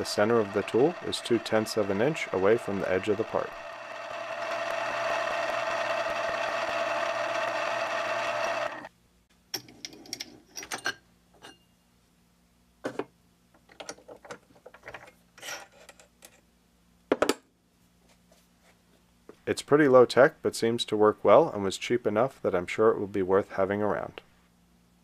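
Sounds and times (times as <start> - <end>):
milling machine motor running: 0.0 - 8.9.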